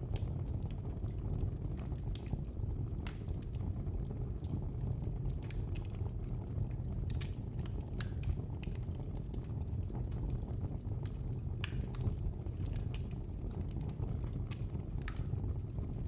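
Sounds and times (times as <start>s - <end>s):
fire snaps and pops: 0.0s - 16.0s
low rumble of burning: 0.0s - 16.0s.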